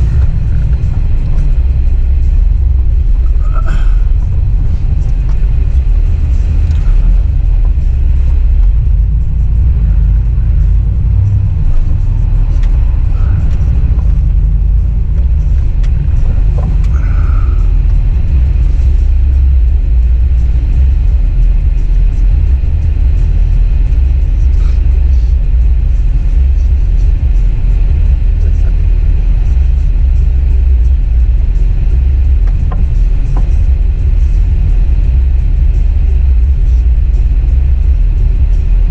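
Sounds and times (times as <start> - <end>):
truck engine rumbling: 0.0 - 38.9.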